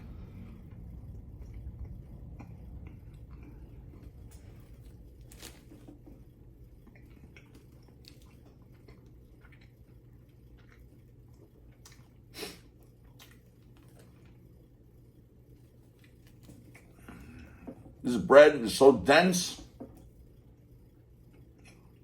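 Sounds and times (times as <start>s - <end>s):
person chewing food: 0.1s - 14.8s, 15.4s - 18.0s.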